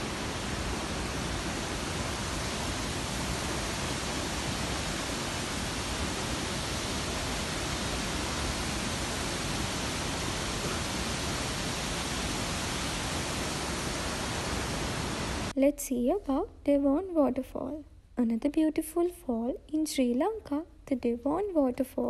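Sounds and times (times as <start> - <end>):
waterfall roaring: 0.0 - 15.5.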